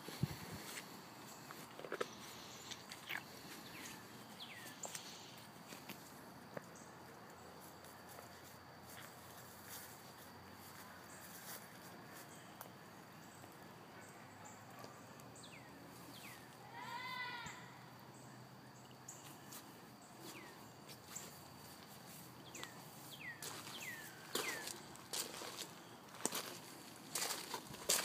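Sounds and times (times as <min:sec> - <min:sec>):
bird-like chirps: 0:02.0 - 0:05.4, 0:13.2 - 0:16.5, 0:22.4 - 0:24.9
soft footsteps: 0:19.2 - 0:28.0.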